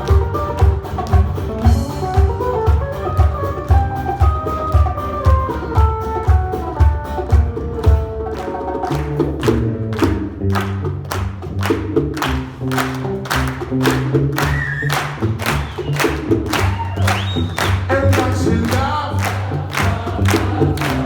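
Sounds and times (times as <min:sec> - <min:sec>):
acoustic band playing soul music: 0:00.0 - 0:21.0
bass line: 0:00.0 - 0:21.0.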